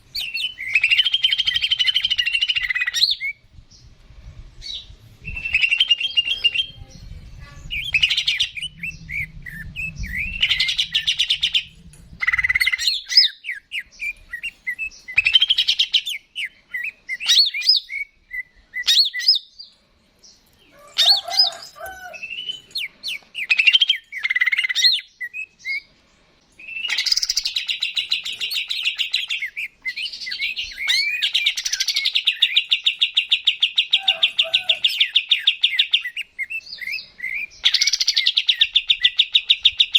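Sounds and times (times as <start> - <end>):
bird singing whistled chirps: 0.1 - 3.4, 4.6 - 19.6, 21.1 - 25.9, 26.6 - 39.9
low rumble: 3.4 - 12.9.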